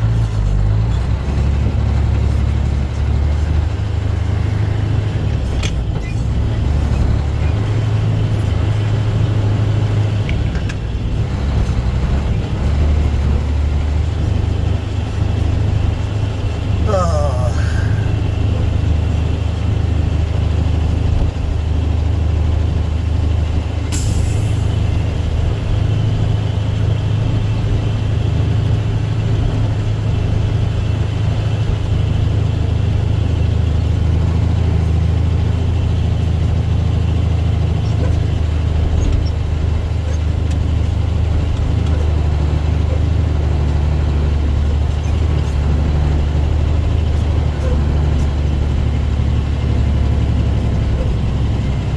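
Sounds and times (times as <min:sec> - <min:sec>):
truck diesel engine droning: 0:00.0 - 0:51.9.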